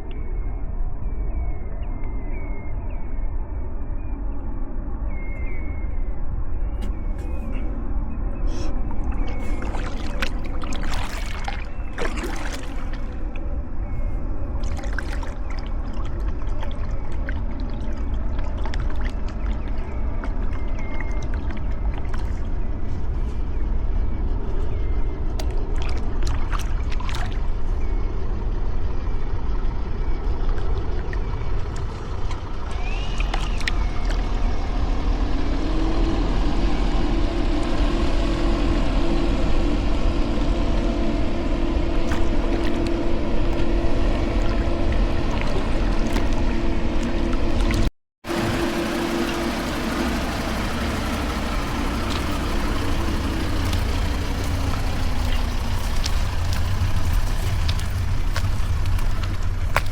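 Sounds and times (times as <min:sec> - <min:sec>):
engine hum: 0:00.0 - 0:59.9
wind rumble on microphone: 0:00.0 - 0:59.9.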